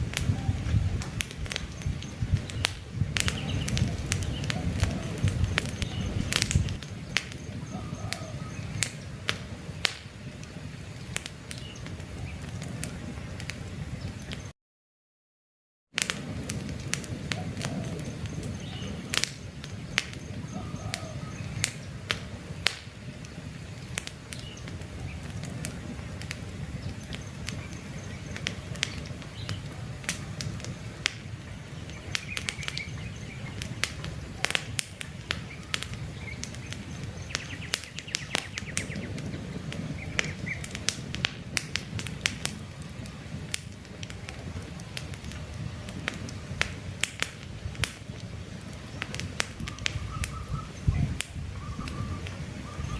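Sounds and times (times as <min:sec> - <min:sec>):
campfire crackling and popping: 0:00.0 - 0:14.5, 0:16.0 - 0:52.9
faint bird chirps: 0:07.3 - 0:09.0, 0:19.8 - 0:21.9, 0:49.6 - 0:52.9.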